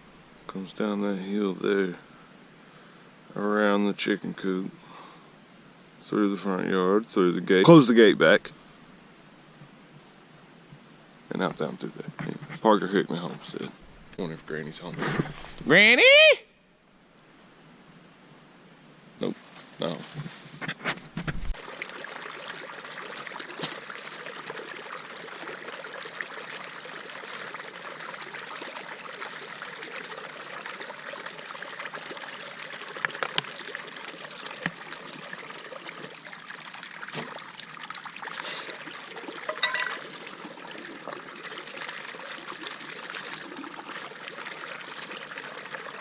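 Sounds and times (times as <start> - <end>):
stream trickling: 11.2 - 15.8, 21.5 - 46.0.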